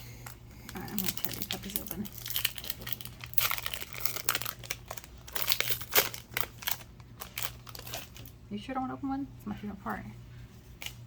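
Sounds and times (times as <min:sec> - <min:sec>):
foil packs tearing and crinkling: 0:00.2 - 0:08.4.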